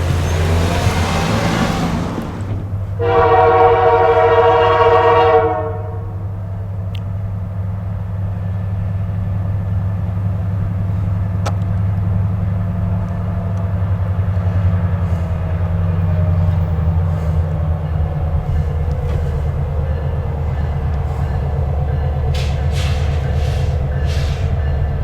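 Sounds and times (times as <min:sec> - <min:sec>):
diesel locomotive horn chord: 0:00.0 - 0:06.5
locomotive engine droning: 0:00.0 - 0:25.0.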